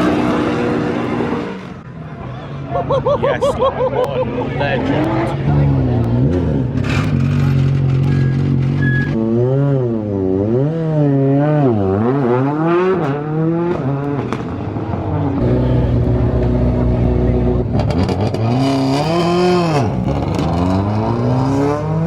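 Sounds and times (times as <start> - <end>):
rally car engine revving: 4.6 - 22.0.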